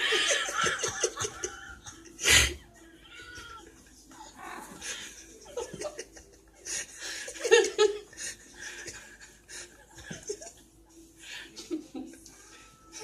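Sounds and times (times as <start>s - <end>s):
people laughing: 0.0s - 2.8s, 3.7s - 12.3s.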